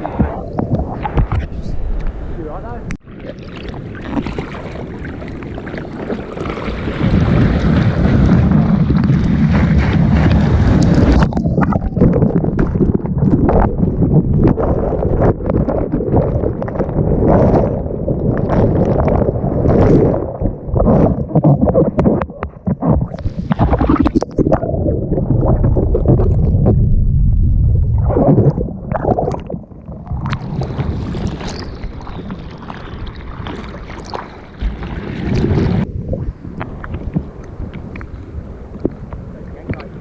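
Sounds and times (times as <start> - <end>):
water rushing and splashing: 0.0 - 26.6, 28.0 - 40.0
wind buffeting microphone: 3.8 - 29.2.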